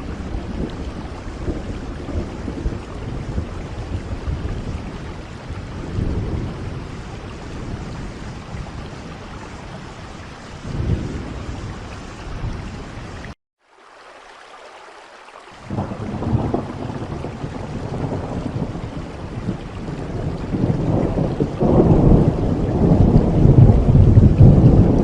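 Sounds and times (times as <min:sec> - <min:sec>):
thunder rumbling: 0:00.0 - 0:13.4, 0:15.6 - 0:25.0
steady rain: 0:00.0 - 0:25.0.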